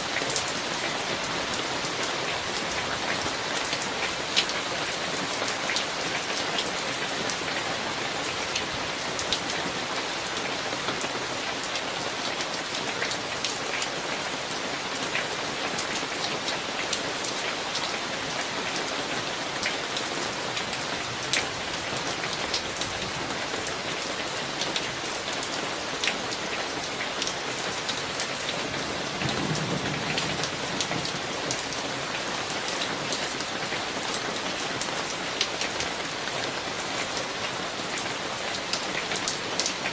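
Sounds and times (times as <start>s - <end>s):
rain falling: 0.0s - 39.9s
distant thunder rumble: 29.2s - 31.3s.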